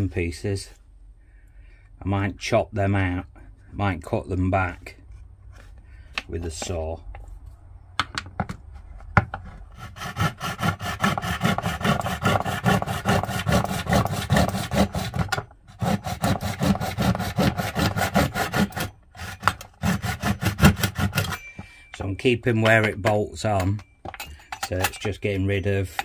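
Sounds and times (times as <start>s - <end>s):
hand saw cutting: 9.7s - 21.5s.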